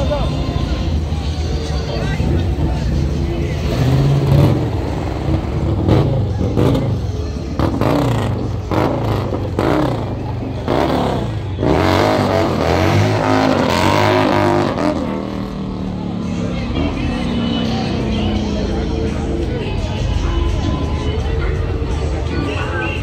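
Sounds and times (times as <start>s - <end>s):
car engines revving in traffic: 0.0s - 23.0s.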